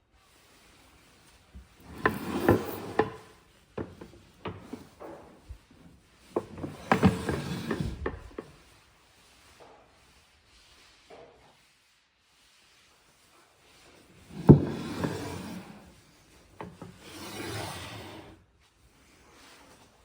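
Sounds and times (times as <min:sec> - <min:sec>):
wood scraping rubs: 0:06.2 - 0:09.6, 0:13.7 - 0:18.4.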